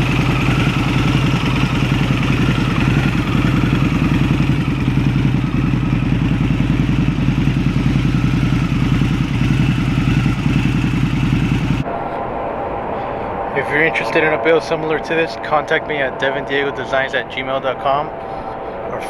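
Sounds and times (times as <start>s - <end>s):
motorcycle engine idling: 0.0s - 11.9s.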